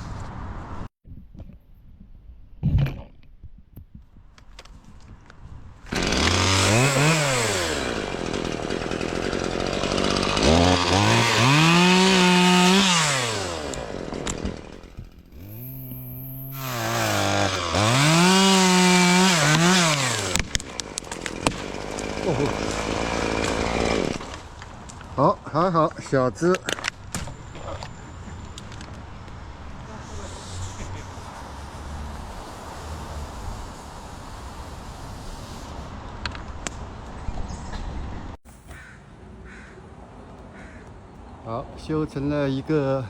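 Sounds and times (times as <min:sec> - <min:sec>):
chainsaw revving: 0:05.9 - 0:24.5, 0:30.2 - 0:35.7.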